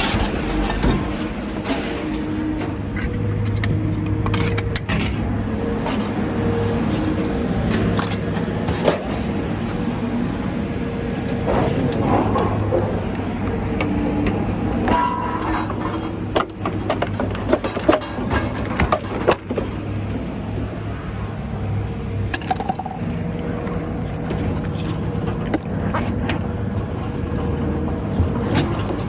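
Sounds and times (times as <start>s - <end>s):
scrap metal clanking: 0.0s - 6.2s, 14.8s - 19.7s
crane engine running: 0.0s - 29.0s.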